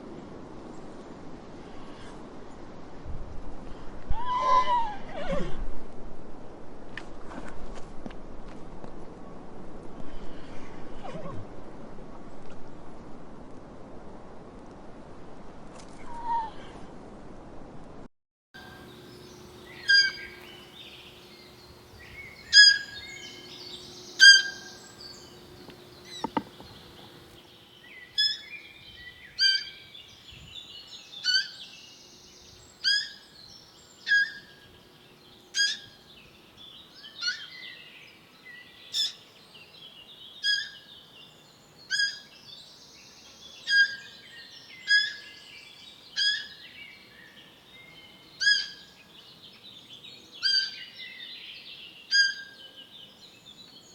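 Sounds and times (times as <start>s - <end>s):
bird high call: 18.6s - 27.3s
faint bird chirping: 18.6s - 28.7s.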